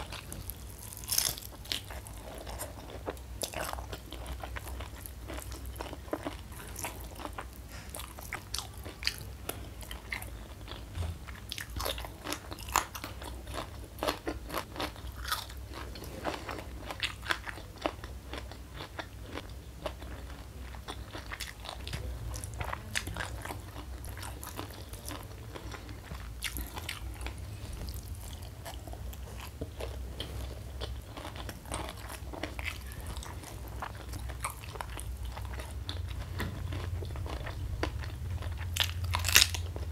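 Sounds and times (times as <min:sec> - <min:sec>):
chewing crunchy fried food: 0:00.0 - 0:39.9
low steady hum: 0:00.0 - 0:39.9.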